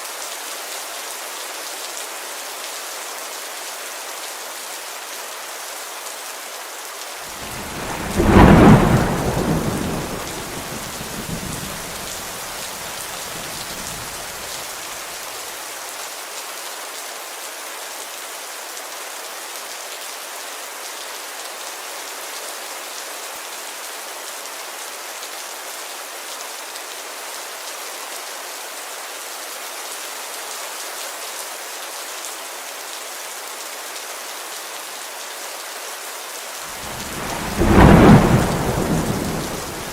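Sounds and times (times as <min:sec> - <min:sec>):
rain pattering on a window: 0:07.1 - 0:16.5, 0:36.8 - 0:39.9
thunder clap rumbling: 0:07.4 - 0:14.5, 0:36.8 - 0:39.9.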